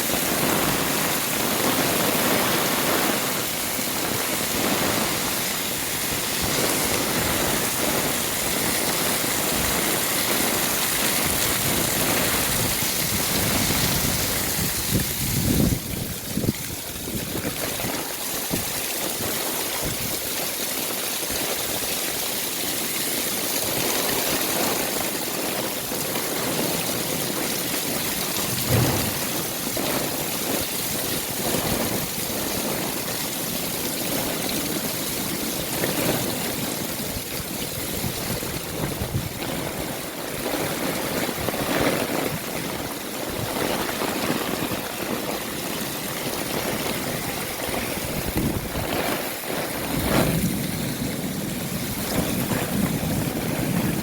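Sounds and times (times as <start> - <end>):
heavy rain hiss: 0.0 - 54.0
louder splashes or knocks: 28.2 - 30.8.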